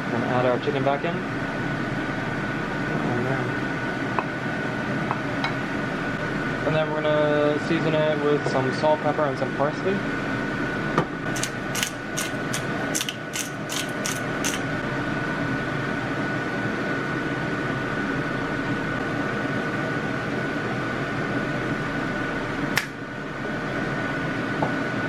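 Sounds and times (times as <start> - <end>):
pepper mill grinding: 11.4 - 14.7.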